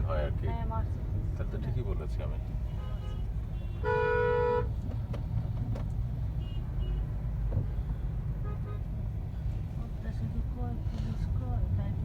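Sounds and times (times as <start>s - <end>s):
road traffic rumble: 0.0s - 12.0s
vehicle horn honking: 2.7s - 4.7s.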